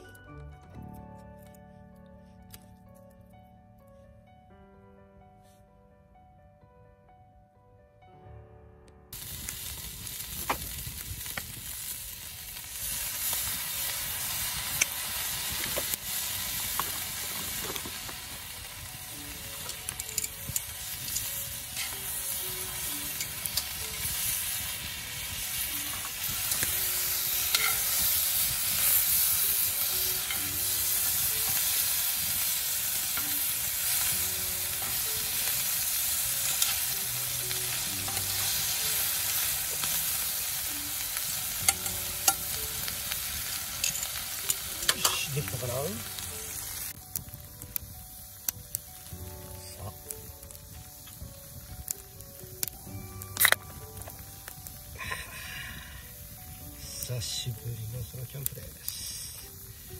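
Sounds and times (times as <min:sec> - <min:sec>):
beans sizzling in skillet: 0:09.1 - 0:59.9
tongs clicking: 0:19.6 - 0:22.0, 0:27.5 - 0:27.9.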